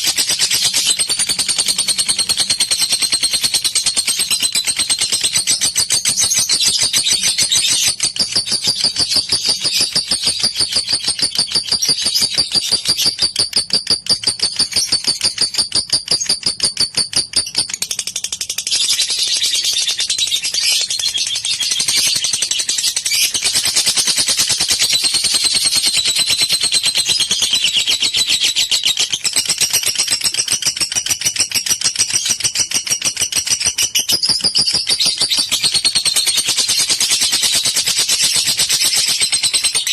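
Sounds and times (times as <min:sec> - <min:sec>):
lovebird chattering trill: 0:00.0 - 0:18.3, 0:23.1 - 0:39.9.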